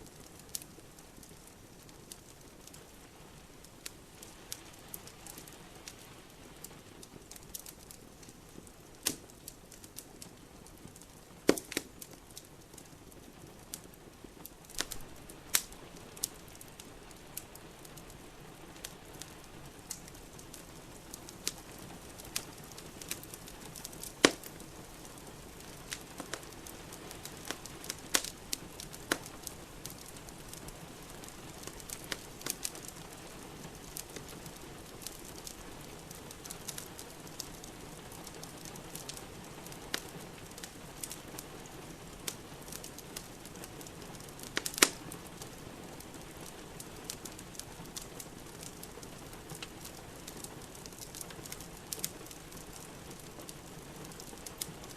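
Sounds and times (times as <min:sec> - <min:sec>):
rain hiss: 0:00.0 - 0:54.9
wood fire crackling: 0:00.0 - 0:54.9
sharp pops of fire: 0:07.0 - 0:16.8, 0:18.8 - 0:54.9.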